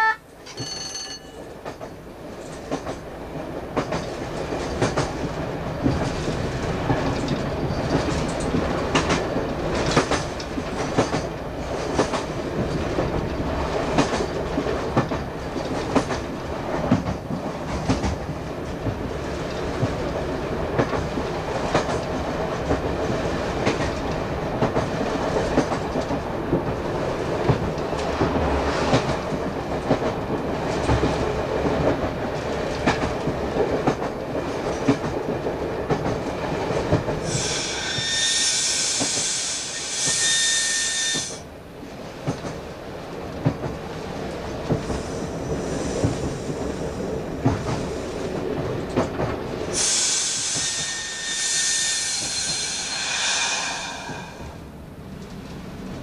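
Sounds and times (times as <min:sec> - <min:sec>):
train rumble: 0:00.0 - 0:56.0
wheels clicking over rail joints: 0:00.4 - 0:37.3.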